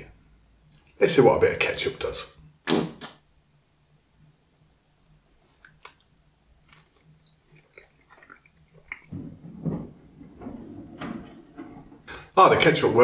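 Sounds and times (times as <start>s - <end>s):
man chewing food: 5.4s - 10.4s.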